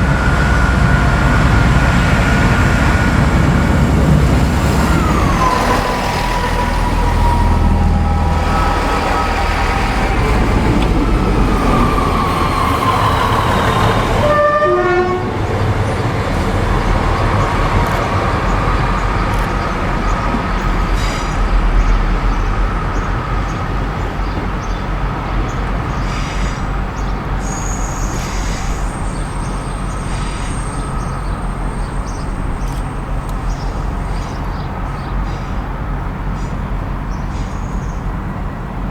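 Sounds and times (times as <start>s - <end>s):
diesel train engine rumble: 0.0s - 38.9s
train horn falling in pitch: 14.2s - 15.5s.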